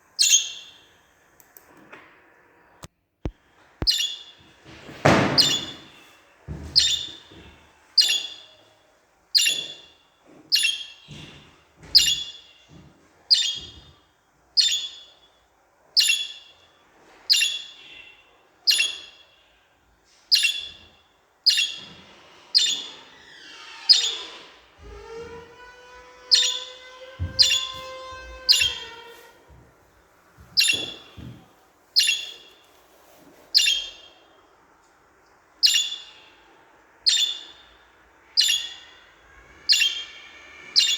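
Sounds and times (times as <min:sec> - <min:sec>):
budgerigars chirping: 0:00.2 - 0:00.8, 0:03.8 - 0:04.4, 0:05.0 - 0:06.0, 0:06.8 - 0:07.4, 0:08.0 - 0:08.6, 0:09.4 - 0:09.9, 0:10.5 - 0:11.1, 0:11.9 - 0:12.6, 0:13.3 - 0:13.9, 0:14.6 - 0:15.3, 0:16.0 - 0:16.7, 0:17.3 - 0:19.4, 0:20.3 - 0:20.9, 0:21.5 - 0:22.0, 0:22.6 - 0:23.1, 0:23.9 - 0:24.4, 0:26.2 - 0:29.0, 0:30.6 - 0:31.4, 0:32.0 - 0:32.6, 0:33.5 - 0:34.2, 0:35.6 - 0:36.4, 0:37.0 - 0:40.9.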